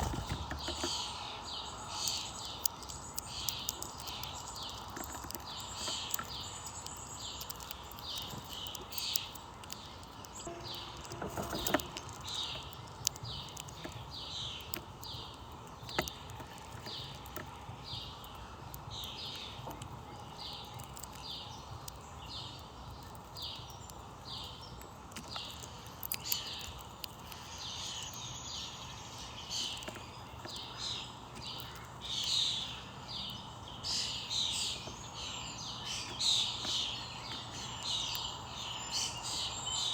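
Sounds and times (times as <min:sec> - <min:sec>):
birds chirping: 0:00.0 - 0:39.9
low background hum: 0:00.0 - 0:39.9
sharp clicks: 0:02.0 - 0:28.2.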